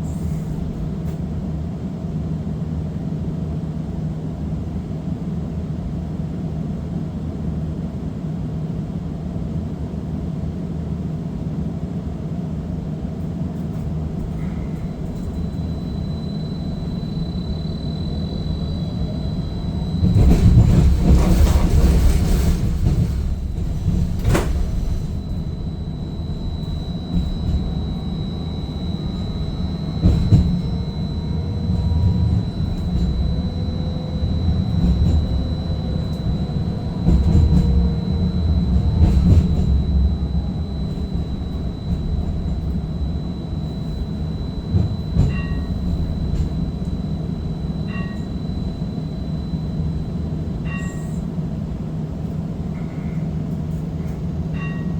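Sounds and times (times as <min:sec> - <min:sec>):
streetcar wheels rumbling: 0:12.4 - 0:54.9
high whine: 0:13.8 - 0:53.2
short beeps: 0:14.3 - 0:51.3, 0:54.6 - 0:54.9.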